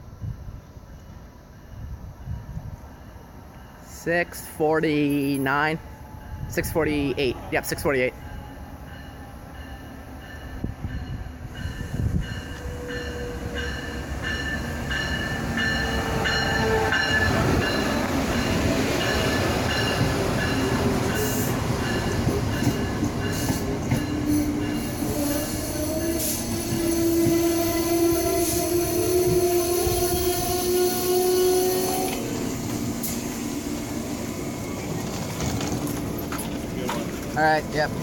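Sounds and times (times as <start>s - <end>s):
train wheels rumbling: 1.0s - 38.0s
locomotive bell ringing: 2.4s - 25.2s.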